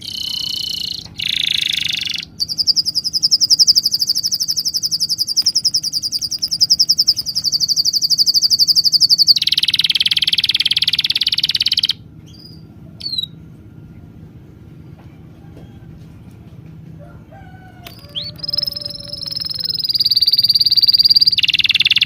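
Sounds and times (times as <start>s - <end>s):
high pulsing animal trill: 0.0s - 12.0s, 17.8s - 22.0s
short falling chirps: 17.9s - 22.0s.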